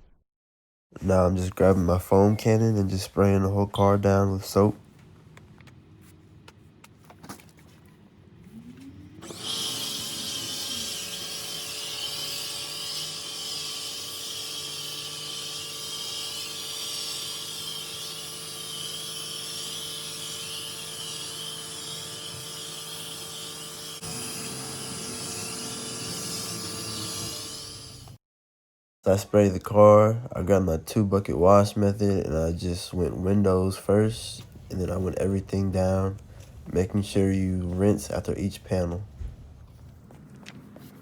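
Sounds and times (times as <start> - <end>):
pressure washer motor humming: 9.2 - 21.1, 22.0 - 28.2.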